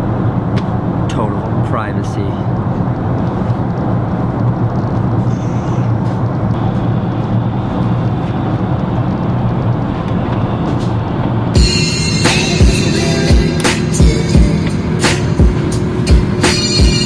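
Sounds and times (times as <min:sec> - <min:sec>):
airliner cabin noise: 0:00.0 - 0:17.0
music with thumping beat: 0:10.3 - 0:17.0.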